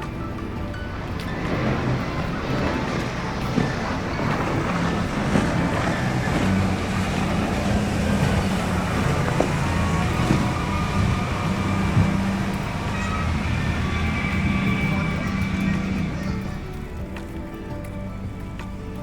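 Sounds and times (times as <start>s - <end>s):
low engine hum: 0.0s - 19.0s
wind and water rushing: 0.0s - 19.0s.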